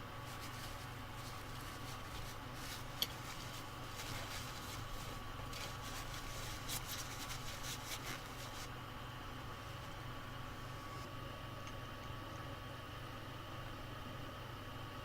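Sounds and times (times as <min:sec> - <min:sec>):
electrical hum with high whine: 0:00.0 - 0:15.0
small clicks and scrapes: 0:00.2 - 0:08.7.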